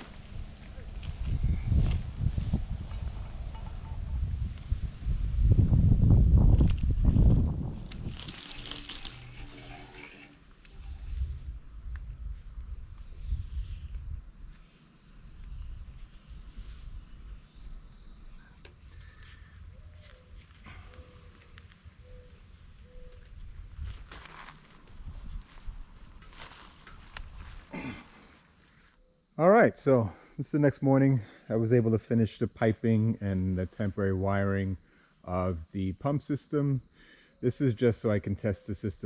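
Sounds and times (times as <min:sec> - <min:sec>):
low rumble: 0:00.0 - 0:09.9
insect chorus: 0:00.0 - 0:39.0.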